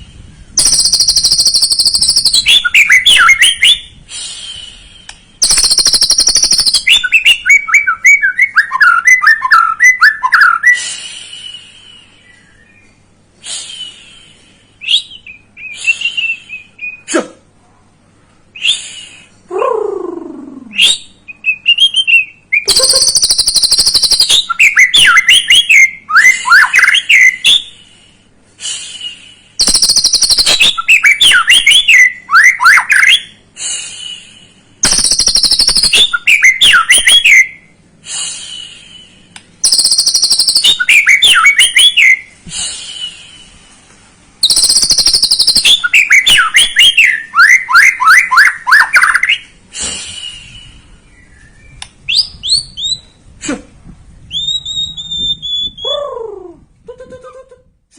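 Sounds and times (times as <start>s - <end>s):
bird singing with chattering rattles: 0.5s - 3.9s, 5.4s - 10.6s, 21.1s - 27.6s, 29.6s - 33.3s, 34.8s - 37.6s, 39.6s - 42.2s, 44.4s - 49.4s.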